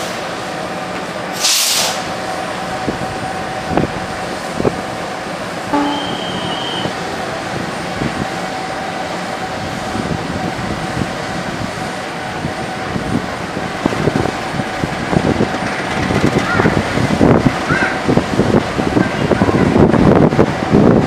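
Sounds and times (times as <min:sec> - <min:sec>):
train rumbling past: 0:00.0 - 0:21.0
brief high-pitched tone: 0:05.7 - 0:07.0.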